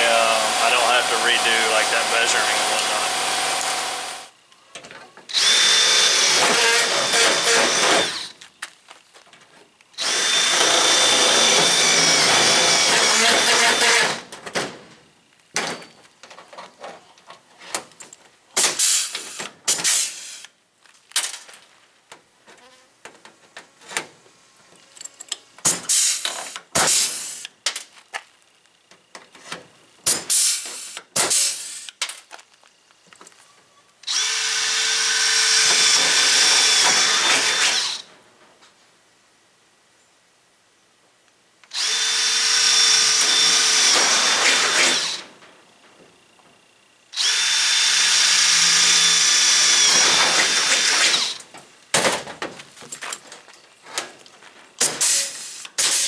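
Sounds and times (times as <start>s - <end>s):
power tool whining on sheet metal: 0.0s - 4.4s, 5.3s - 8.4s, 10.0s - 14.3s, 34.0s - 38.1s, 41.7s - 45.4s, 47.2s - 51.6s.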